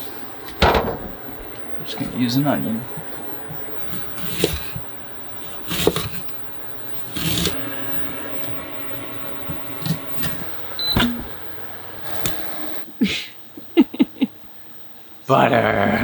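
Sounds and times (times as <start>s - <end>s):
low steady hum: 0.4s - 7.1s
kitchen utensils clattering: 0.5s - 2.0s.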